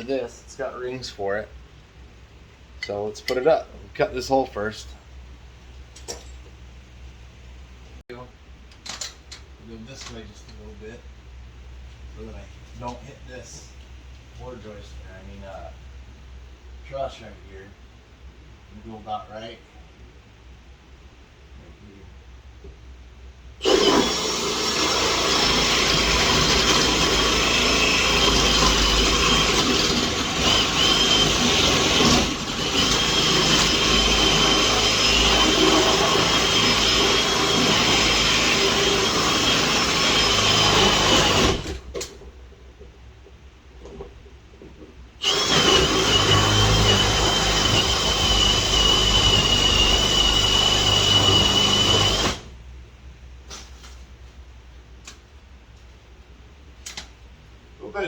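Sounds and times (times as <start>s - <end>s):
power drill cutting drywall: 23.6s - 41.8s, 45.2s - 52.5s.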